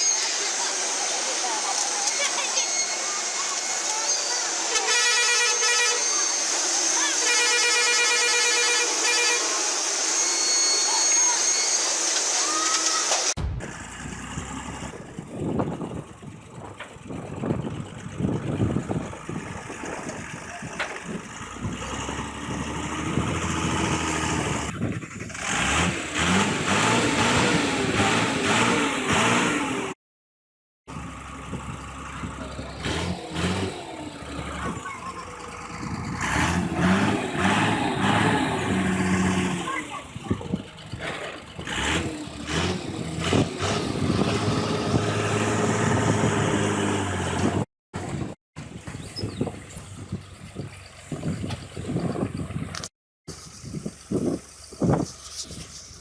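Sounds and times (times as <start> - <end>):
engine revving: 5.0 - 16.4, 17.2 - 30.0, 30.9 - 48.3
vehicle engine running: 12.0 - 30.0, 30.9 - 56.0.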